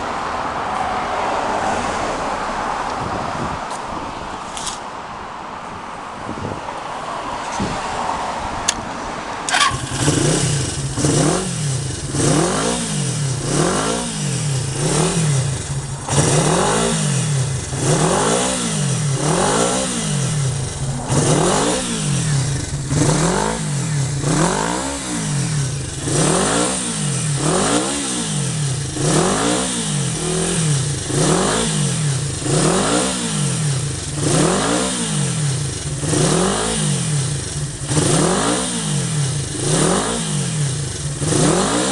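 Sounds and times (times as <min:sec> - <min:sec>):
motorcycle engine revving: 0:09.5 - 0:41.9.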